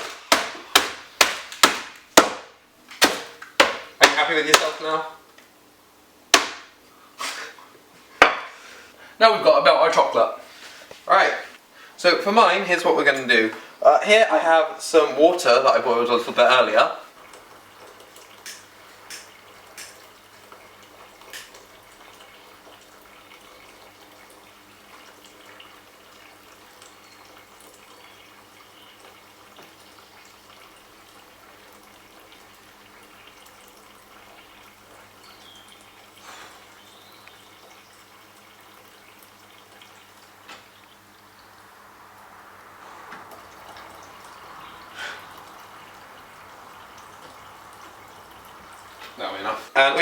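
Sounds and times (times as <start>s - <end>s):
kitchenware clinking: 8.2s - 8.6s
water trickling into a pan: 14.4s - 50.0s.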